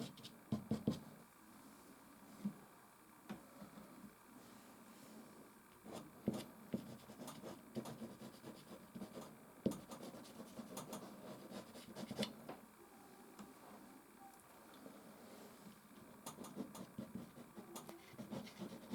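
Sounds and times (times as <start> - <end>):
pastel scratching on canvas: 16.6 - 18.9.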